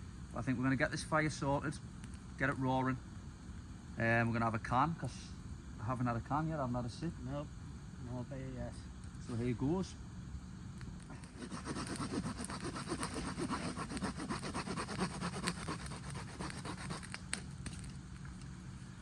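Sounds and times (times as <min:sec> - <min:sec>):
hand saw rasping through wood: 0:11.3 - 0:17.1.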